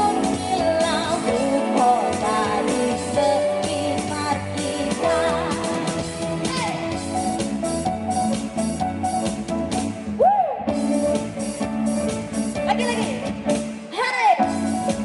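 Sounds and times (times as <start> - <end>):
person singing: 0.0 - 6.9
drums: 0.0 - 15.0
guitar: 0.0 - 15.0.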